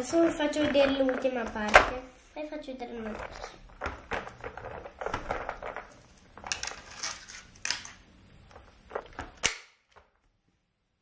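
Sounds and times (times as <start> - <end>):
sharp plastic snap: 9.2 - 10.1.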